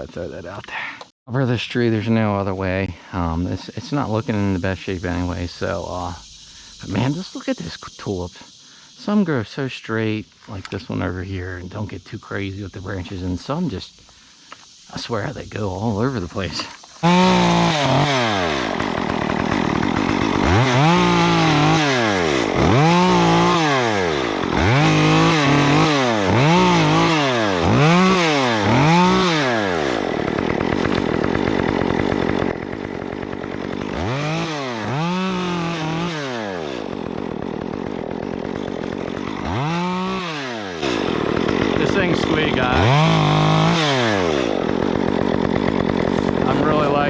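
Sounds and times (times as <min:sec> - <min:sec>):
chainsaw cutting wood: 0:15.9 - 0:47.0.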